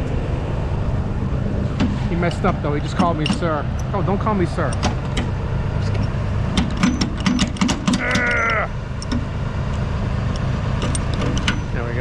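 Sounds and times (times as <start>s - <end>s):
diesel engine rumbling: 0.0s - 12.0s
clicks and rattles: 4.6s - 11.8s.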